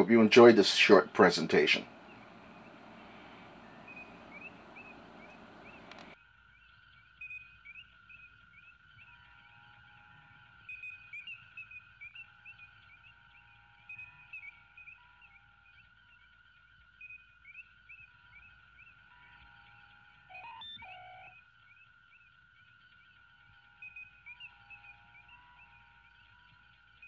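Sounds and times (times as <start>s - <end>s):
steady hiss: 0.0s - 6.2s
faint bird chirps: 0.0s - 27.0s.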